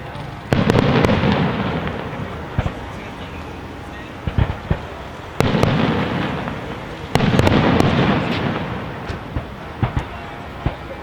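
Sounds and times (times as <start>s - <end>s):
fireworks bursting with rumble: 0.0s - 11.0s
small sharp bangs: 4.2s - 10.9s.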